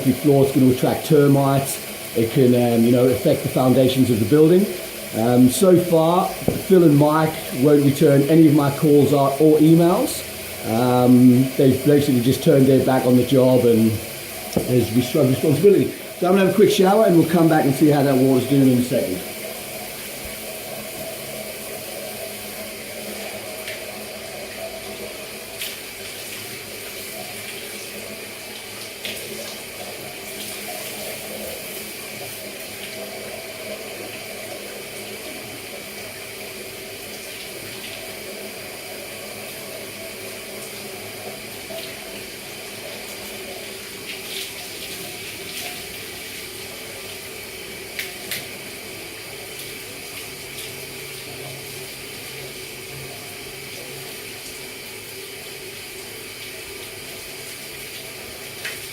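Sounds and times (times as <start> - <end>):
shower water spraying: 0.0 - 58.9
knocks or splashes: 6.3 - 7.2, 14.5 - 15.2.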